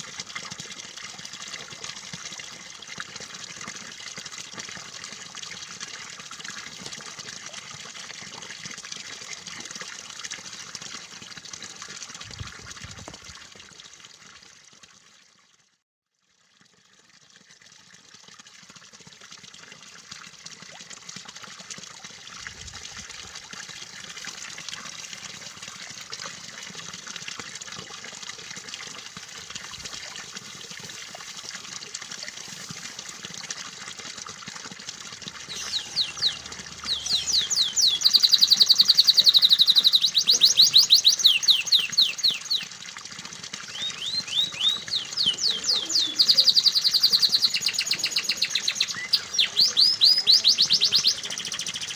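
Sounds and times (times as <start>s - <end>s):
running water trickling: 0.0s - 51.9s
canary trilling: 35.5s - 42.6s, 43.7s - 51.5s.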